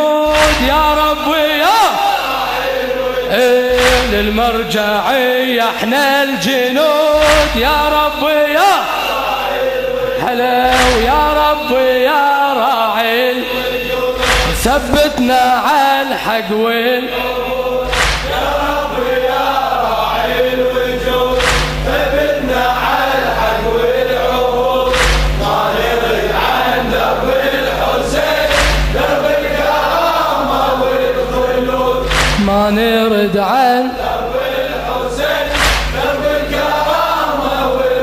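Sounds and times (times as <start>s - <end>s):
men's chorus chanting a lament: 0.0s - 38.0s
deep percussion hits: 0.2s - 5.2s, 7.1s - 8.6s, 10.6s - 12.1s, 13.8s - 15.7s, 17.1s - 20.3s, 21.0s - 32.9s, 34.0s - 37.5s.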